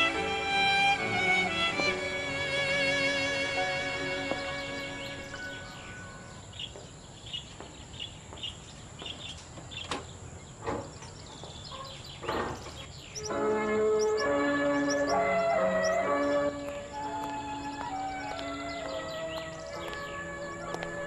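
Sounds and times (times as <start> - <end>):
music: 0.0 - 6.4, 13.2 - 21.0
small bird chirping: 0.0 - 21.0
sharp knocks: 12.2 - 12.9.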